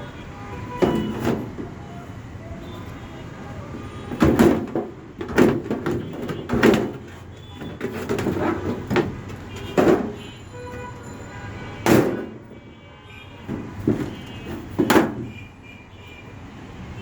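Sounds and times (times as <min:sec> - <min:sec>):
steady background noise: 0:00.0 - 0:17.0
knocks and clattering bangs: 0:00.7 - 0:01.9, 0:04.0 - 0:11.0, 0:11.8 - 0:12.6, 0:13.4 - 0:15.4.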